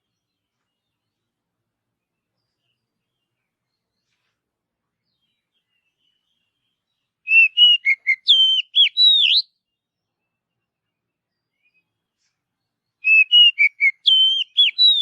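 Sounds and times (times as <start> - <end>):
bird singing whistled notes: 5.1 - 15.0.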